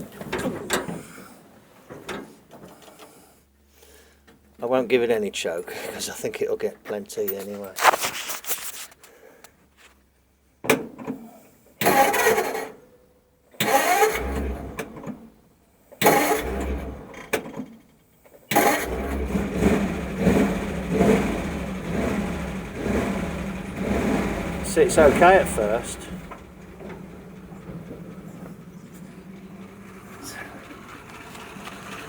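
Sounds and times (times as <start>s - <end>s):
starter motor cranking: 13.6s - 14.9s, 18.5s - 32.0s
engine running: 16.1s - 17.2s, 18.5s - 32.0s.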